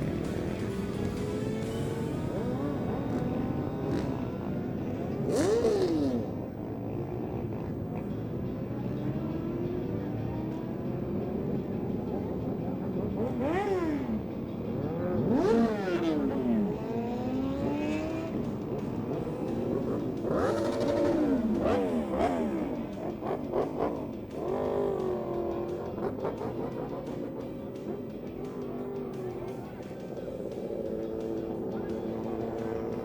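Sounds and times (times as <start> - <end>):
motorbike engines revving: 0.0 - 33.0.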